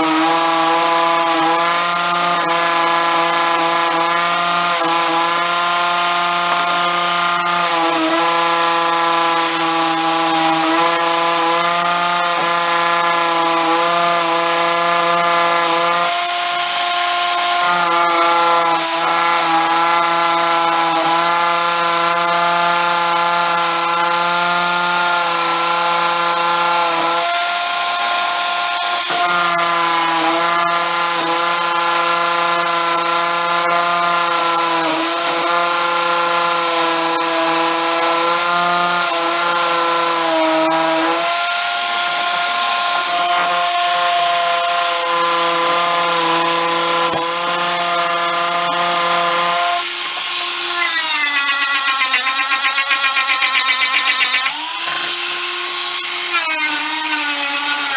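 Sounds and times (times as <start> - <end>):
power tool motor whining: 0.0 - 57.9
loud hiss: 49.8 - 53.2, 53.8 - 57.9.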